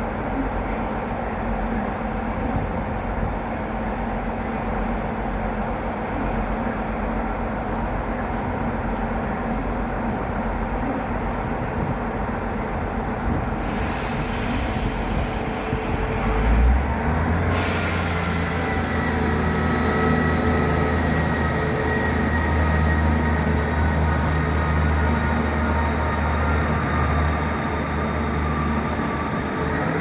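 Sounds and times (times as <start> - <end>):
train rumble with low droning hum: 0.0 - 30.0
hiss of air: 13.6 - 16.6, 17.4 - 20.4.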